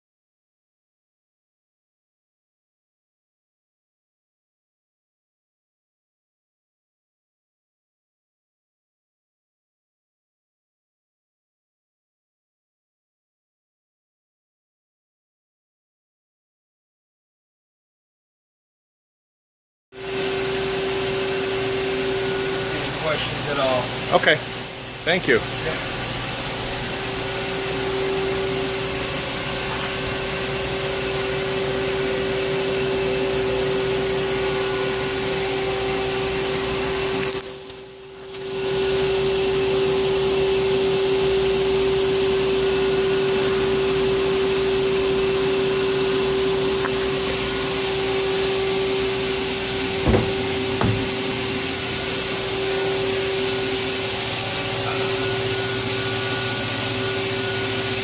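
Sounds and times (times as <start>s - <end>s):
lathe whirring hum: 20.0s - 58.0s.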